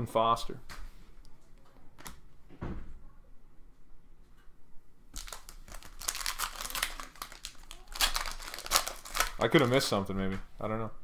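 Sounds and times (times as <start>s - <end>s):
plastic wrapper crinkling: 5.1s - 10.0s.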